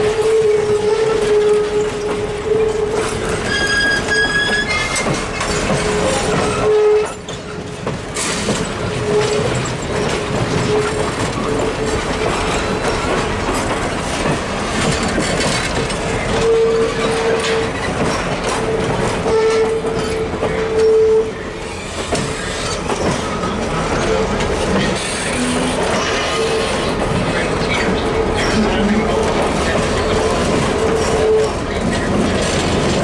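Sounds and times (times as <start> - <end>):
wheels squealing: 0.0 - 13.6
train wheel rumble and rail clatter: 0.0 - 33.0.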